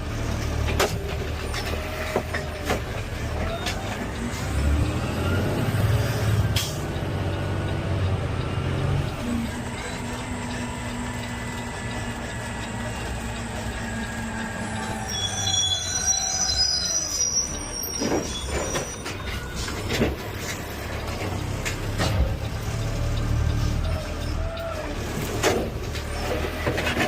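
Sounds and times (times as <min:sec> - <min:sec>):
garbage truck engine hum: 0:00.0 - 0:27.0
high-pitched squealing: 0:11.9 - 0:19.9.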